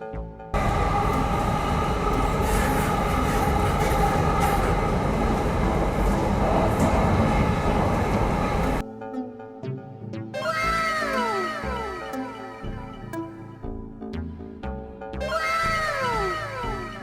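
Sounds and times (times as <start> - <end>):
rumbling vehicle noise: 0.6 - 8.8
steady ringing tones: 0.6 - 9.0.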